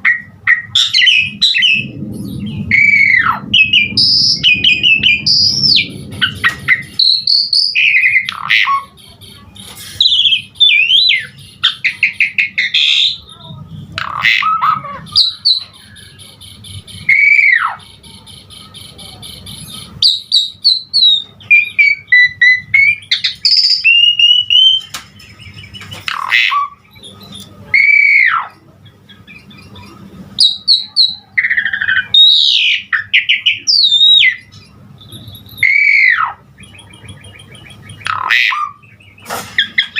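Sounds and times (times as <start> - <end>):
starling singing varied song: 0.0 - 39.9.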